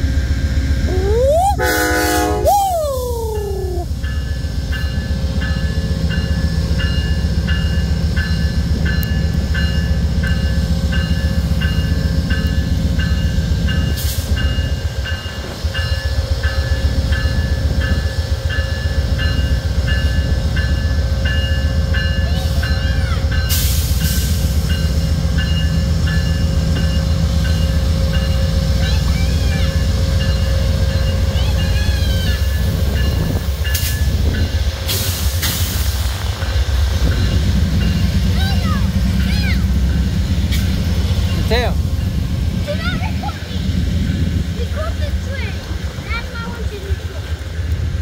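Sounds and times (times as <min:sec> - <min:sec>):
diesel locomotive rumbling: 0:00.0 - 0:48.0
crossing bell ringing: 0:03.4 - 0:34.7.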